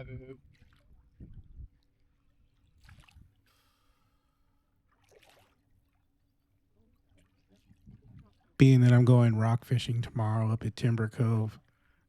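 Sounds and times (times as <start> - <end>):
faint brief water sounds: 0.4 - 8.6.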